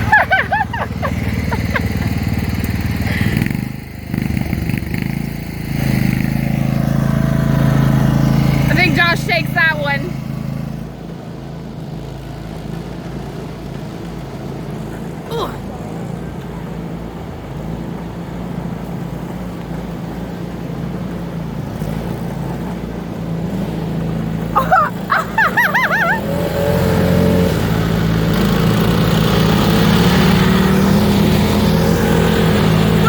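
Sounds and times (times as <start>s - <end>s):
lawnmower engine running: 0.0s - 15.2s, 15.8s - 33.0s
warbling wail: 24.6s - 26.7s.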